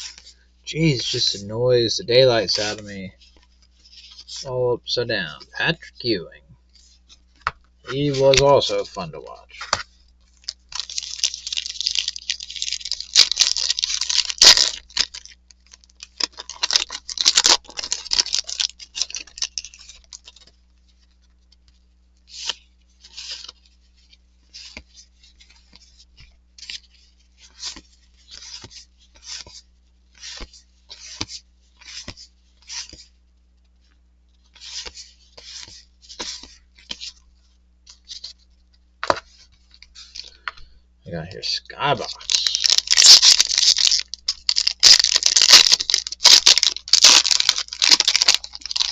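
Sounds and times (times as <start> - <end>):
wrapper tearing and crinkling: 10.4 - 20.5, 42.0 - 48.9.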